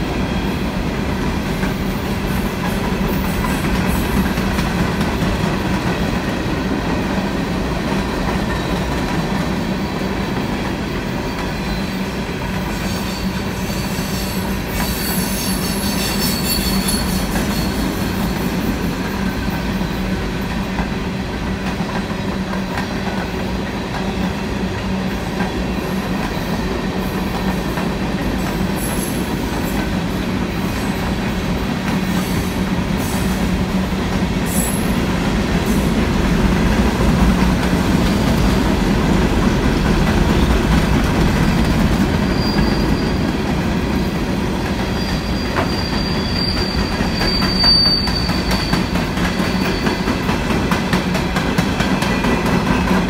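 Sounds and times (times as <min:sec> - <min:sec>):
steel wheels rolling on rail: 0:00.0 - 0:53.0
high wheel squeal: 0:12.7 - 0:18.6, 0:42.2 - 0:43.4, 0:44.8 - 0:50.2.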